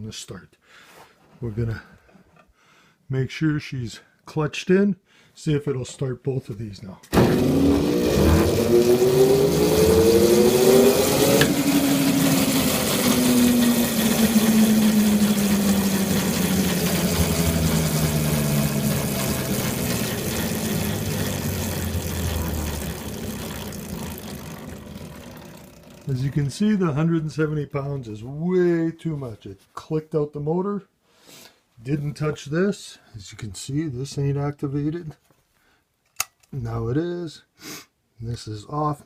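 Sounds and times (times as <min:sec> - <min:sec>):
electric motor hum: 0:07.2 - 0:26.5
motor cut-out click: 0:11.2 - 0:11.7.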